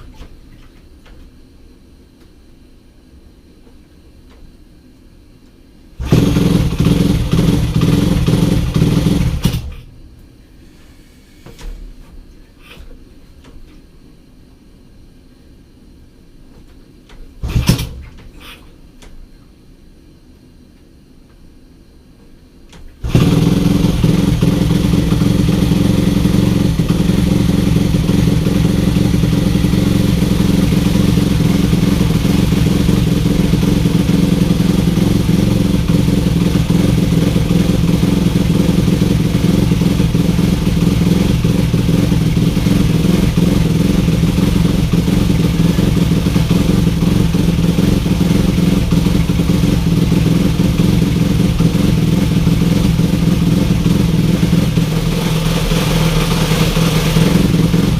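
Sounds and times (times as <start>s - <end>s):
motorcycle engine idling: 6.0s - 9.7s, 23.0s - 57.9s.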